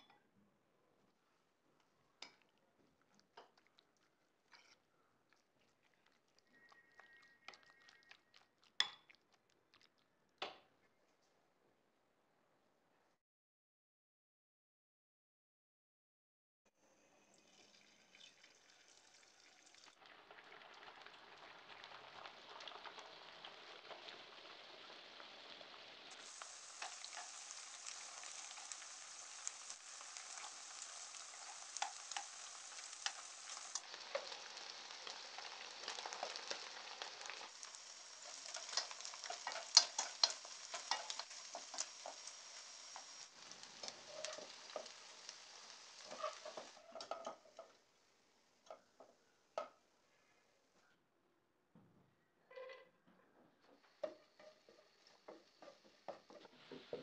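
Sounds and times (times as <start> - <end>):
chicken sizzling in hot oil: 5.5 - 10.0, 17.0 - 49.9, 54.0 - 57.0
metal utensils stirring in wok: 29.9 - 47.7.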